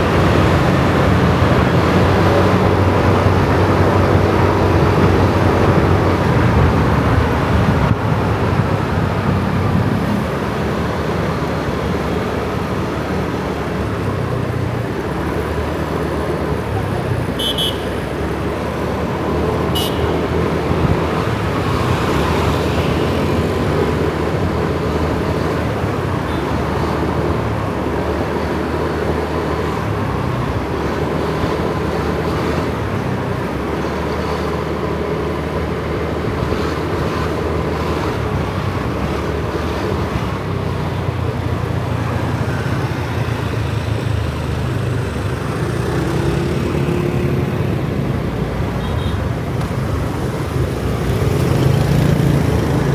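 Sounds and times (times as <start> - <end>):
road and traffic noise: 0.0 - 52.9
motorcycle engine revving: 42.0 - 52.9.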